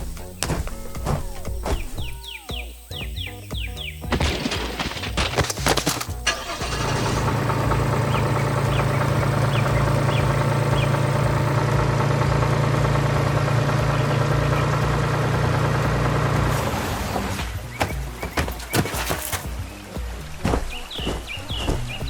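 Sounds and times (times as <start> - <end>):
farm machine engine running: 6.2 - 22.0.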